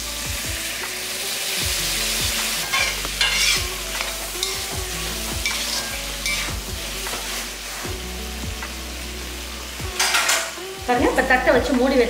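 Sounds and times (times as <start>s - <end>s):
food sizzling in a hot pan: 0.0s - 12.0s
spoon scraping a pan: 2.5s - 7.9s, 10.0s - 10.6s.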